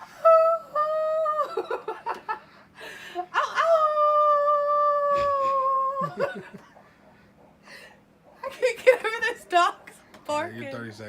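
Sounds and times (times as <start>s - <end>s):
woman howling like a coyote: 0.2s - 1.7s, 3.3s - 6.4s.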